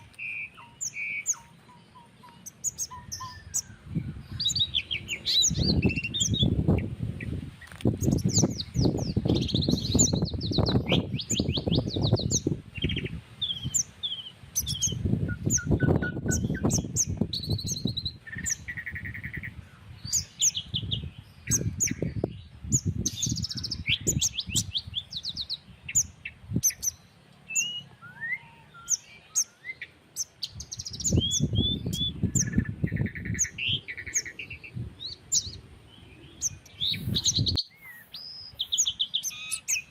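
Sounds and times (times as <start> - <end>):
small birds chirping and trilling: 0.0 - 39.9
wind buffeting microphone: 2.6 - 27.0, 30.4 - 37.6.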